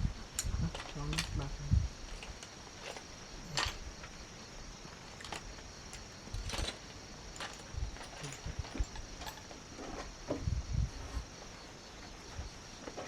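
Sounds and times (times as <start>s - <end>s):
high insect drone: 0.0s - 13.0s
light knocks and clatters: 5.1s - 10.6s.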